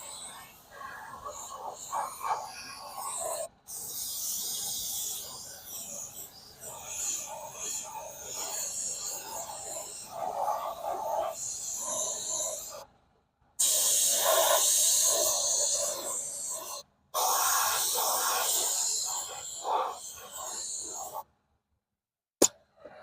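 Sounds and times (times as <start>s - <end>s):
pressurized air hissing: 0.0s - 12.8s, 13.6s - 21.2s.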